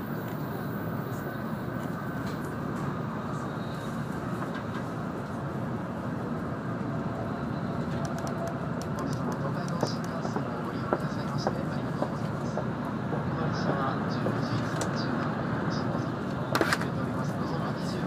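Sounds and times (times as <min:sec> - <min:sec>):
train cabin rumble and hiss: 0:00.0 - 0:18.0.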